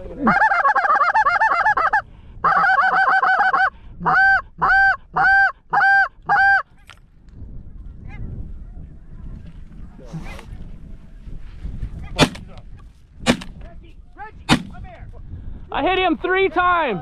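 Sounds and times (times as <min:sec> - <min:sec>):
goose call clucks and honks: 0:00.2 - 0:06.7.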